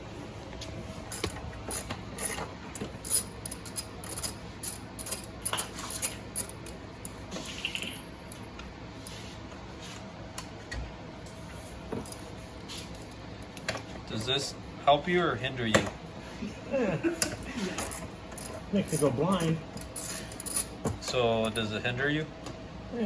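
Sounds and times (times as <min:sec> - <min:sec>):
metal tools clinking: 0:01.1 - 0:08.1, 0:17.6 - 0:21.7.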